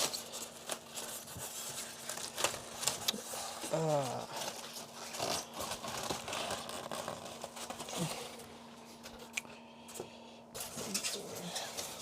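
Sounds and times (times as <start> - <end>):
styrofoam box scraping and rustling: 0.0 - 8.3
faint steady hum: 0.0 - 12.0.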